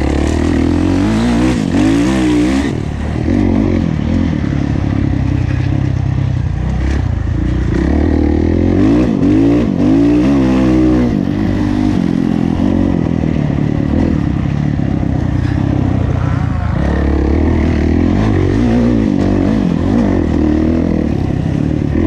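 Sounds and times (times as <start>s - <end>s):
motocross engine revving: 0.0s - 4.7s, 15.2s - 22.0s.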